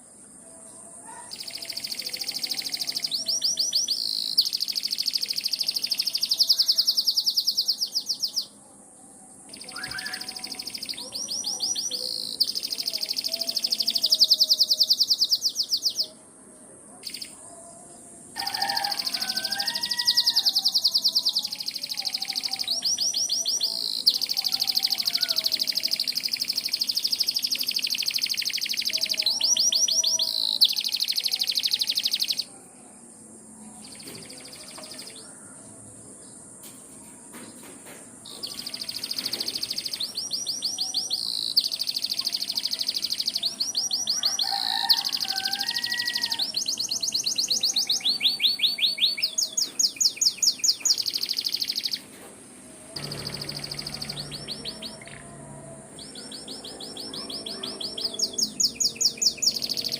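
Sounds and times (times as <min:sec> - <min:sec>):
canary trilling: 0:01.0 - 0:08.6, 0:09.5 - 0:16.2, 0:18.4 - 0:32.5, 0:38.4 - 0:52.1, 0:52.9 - 0:59.9
soft low twittering: 0:52.8 - 0:58.5.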